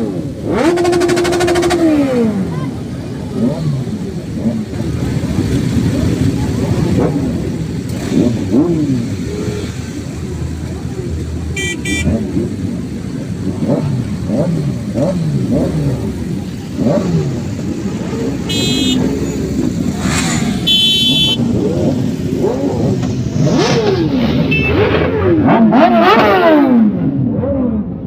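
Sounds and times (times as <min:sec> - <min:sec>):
motorcycle engines revving: 0:00.0 - 0:28.0
short high beeps: 0:11.6 - 0:12.1, 0:20.6 - 0:21.4, 0:24.5 - 0:24.8.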